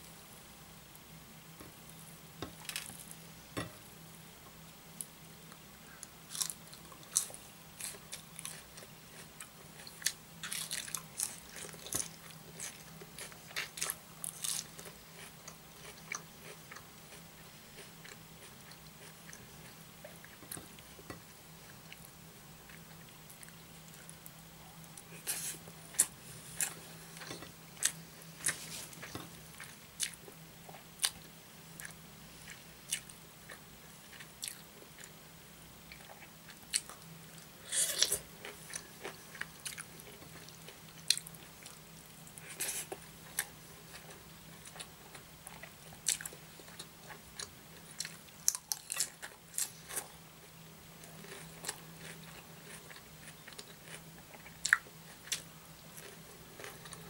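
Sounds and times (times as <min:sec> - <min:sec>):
faint low hum: 0:00.0 - 0:57.0.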